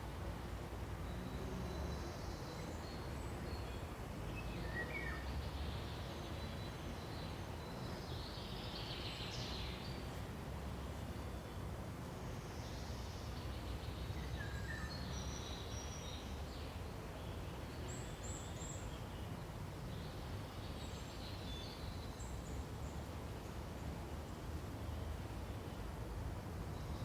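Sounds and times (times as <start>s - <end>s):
wind through pine trees: 0.0s - 27.0s.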